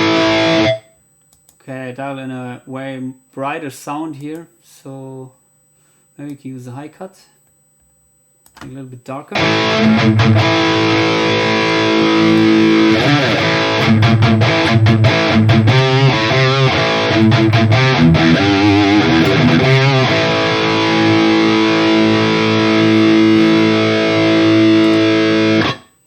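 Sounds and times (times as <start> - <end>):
distorted electric guitar: 0.0 - 0.9, 9.4 - 26.0.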